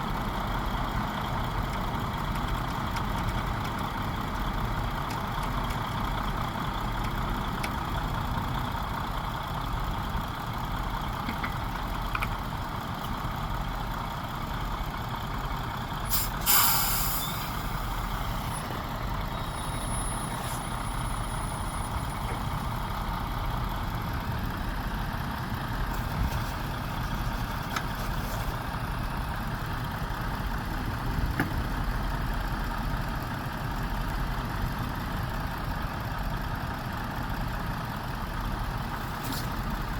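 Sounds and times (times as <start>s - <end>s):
truck engine running: 0.0s - 39.9s
air brake hiss: 16.1s - 18.6s.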